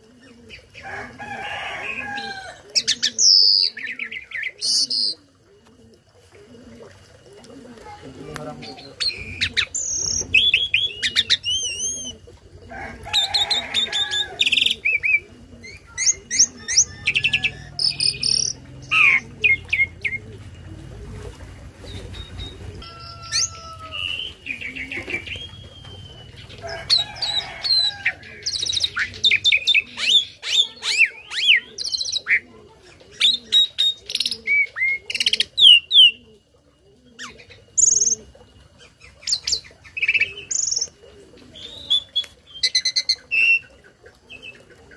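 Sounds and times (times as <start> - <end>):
starling singing: 8.2 - 20.5, 21.9 - 32.5.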